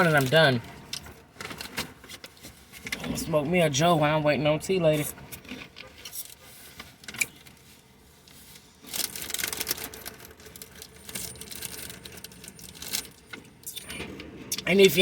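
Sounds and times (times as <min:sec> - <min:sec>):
wrappers rustling: 0:05.4 - 0:13.4.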